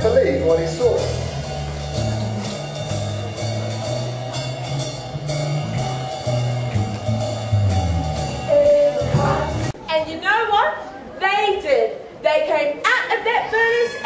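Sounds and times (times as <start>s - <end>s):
bass line: 0.0s - 9.8s
steady drum beat: 0.0s - 9.8s.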